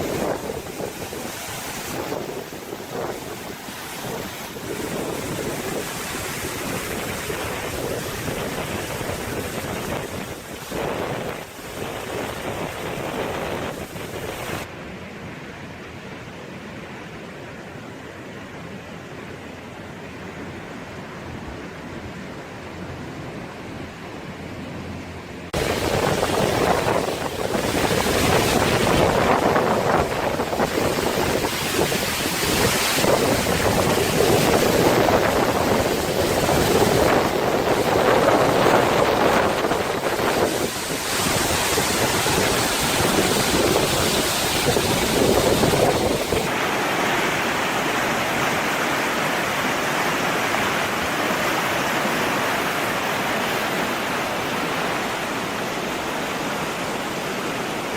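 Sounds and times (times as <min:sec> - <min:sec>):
rushing water: 0:00.0 - 0:57.9.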